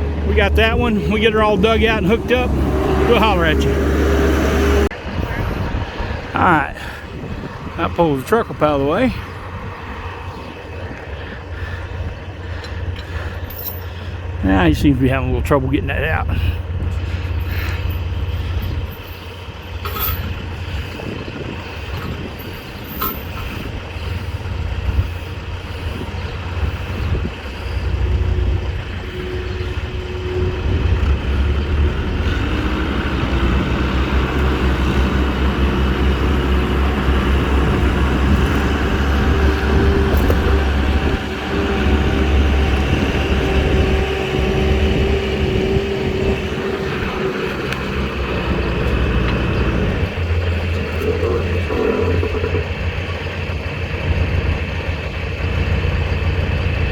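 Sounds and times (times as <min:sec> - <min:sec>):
diesel engine straining: 0:00.0 - 0:56.9
metallic clanks: 0:17.7 - 0:20.5.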